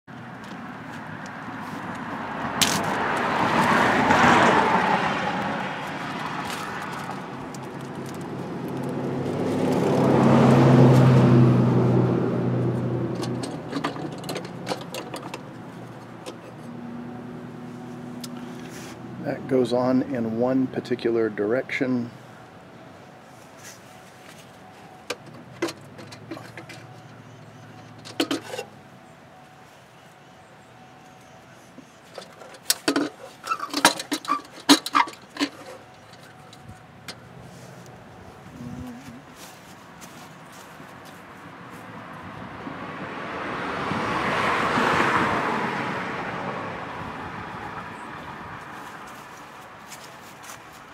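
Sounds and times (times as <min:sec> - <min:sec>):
engine parts clicking and knocking: 0:05.2 - 0:10.5, 0:12.7 - 0:17.0, 0:24.9 - 0:28.8, 0:31.8 - 0:38.4.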